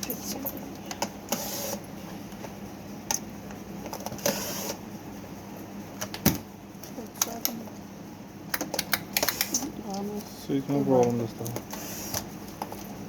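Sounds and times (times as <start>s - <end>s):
fan switch clicking: 8.5s - 9.7s
electric fan being handled: 8.5s - 13.0s.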